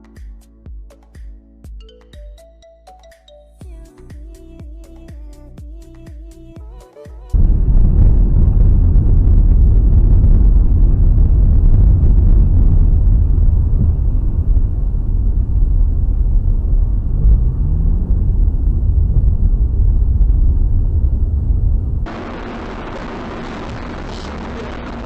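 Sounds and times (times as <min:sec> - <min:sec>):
engine tone rising: 0:07.4 - 0:25.0
vehicle rumble on road: 0:07.4 - 0:25.0.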